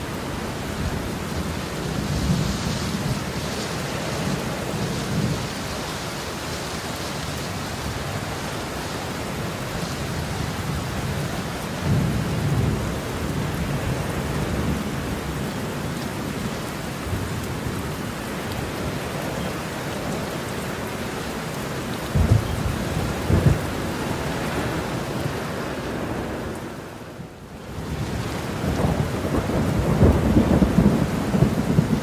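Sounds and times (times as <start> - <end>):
heavy rain falling: 0.0 - 32.0
thunder rumbling: 22.0 - 26.4, 27.8 - 32.0.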